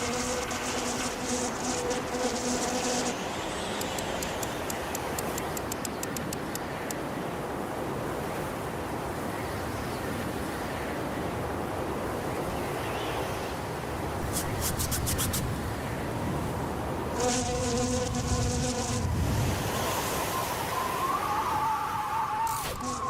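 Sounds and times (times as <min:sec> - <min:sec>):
insect buzzing: 0:00.0 - 0:05.8, 0:14.2 - 0:15.5, 0:17.2 - 0:23.0
rushing wind: 0:03.1 - 0:23.0
quick small ticks: 0:03.7 - 0:07.0.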